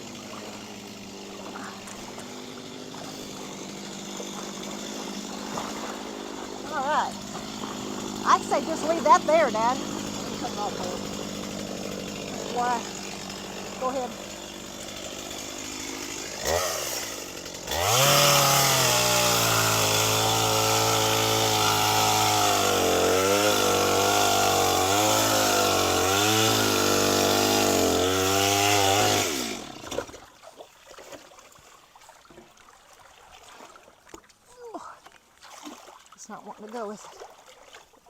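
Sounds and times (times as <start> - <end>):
chainsaw cutting wood: 0.0 - 30.3.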